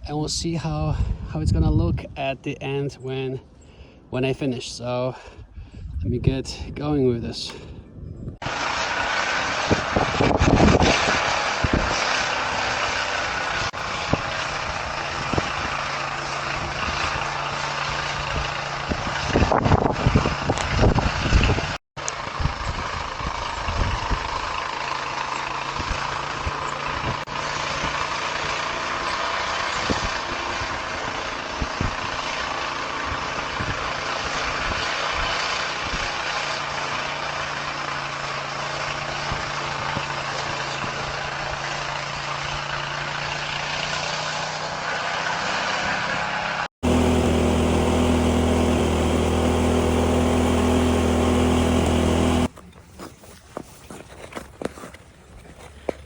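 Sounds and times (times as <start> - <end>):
snow blower engine running: 24.2 - 27.4, 46.8 - 52.5.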